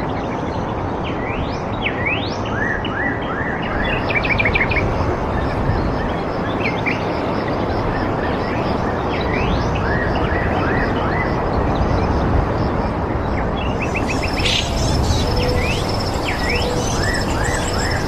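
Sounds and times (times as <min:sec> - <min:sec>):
steady rushing background: 0:12.6 - 0:18.0
birds calling: 0:13.6 - 0:18.0
rising whistled sweeps: 0:13.6 - 0:18.0.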